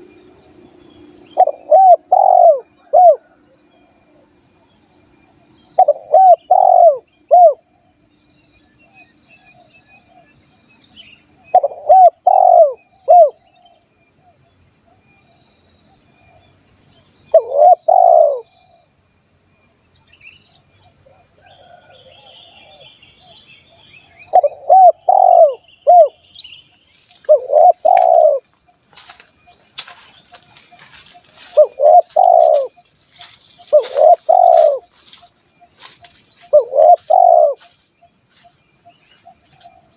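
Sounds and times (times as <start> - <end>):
dove cooing: 1.3 - 3.6, 5.8 - 7.7, 11.5 - 13.6, 17.3 - 18.8, 24.2 - 26.2, 27.2 - 28.5, 30.9 - 32.8, 33.7 - 35.0, 36.5 - 37.7.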